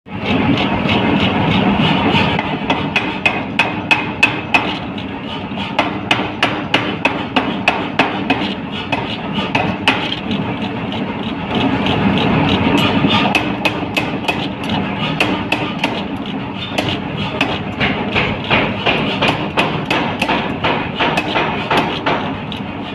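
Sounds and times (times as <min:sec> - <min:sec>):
power hammer striking hot steel: 0:00.1 - 0:22.9
machine humming: 0:07.9 - 0:22.9.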